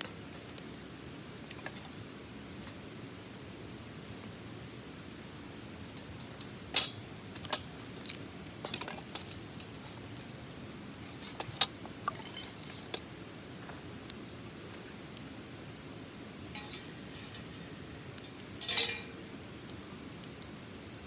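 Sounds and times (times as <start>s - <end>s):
jangling rattle: 16.6s - 17.6s, 18.6s - 19.3s
metal pieces clinking: 16.6s - 17.7s, 18.6s - 19.3s.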